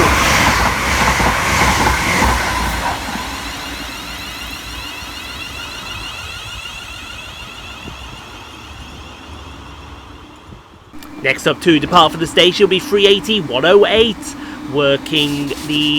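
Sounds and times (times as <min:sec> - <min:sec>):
electric train passing: 0:00.0 - 0:15.9.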